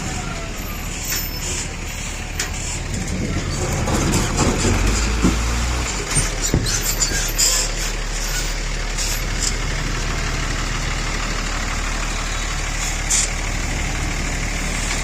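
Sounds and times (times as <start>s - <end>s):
vehicle engine running slowly: 7.8s - 15.0s.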